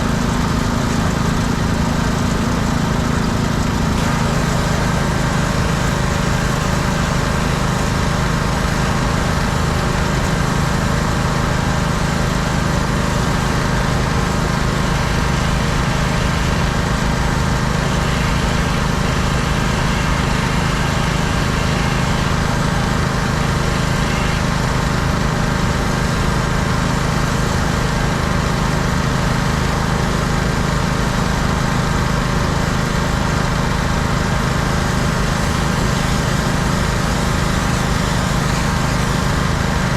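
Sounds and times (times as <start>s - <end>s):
pressure washer engine running: 0.0s - 39.9s
water spray hissing: 12.3s - 24.6s.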